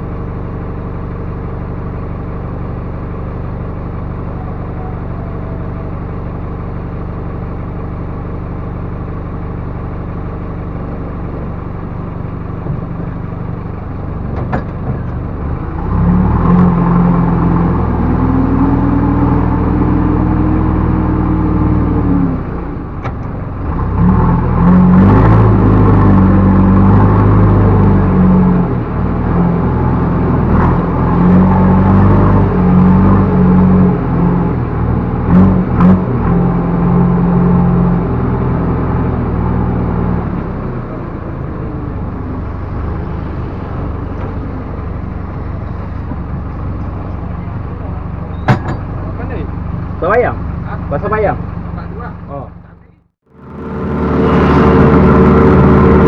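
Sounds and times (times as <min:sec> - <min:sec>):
diesel engine idling and revving: 0:00.0 - 0:56.0
sharp metal clanks: 0:48.3 - 0:49.1.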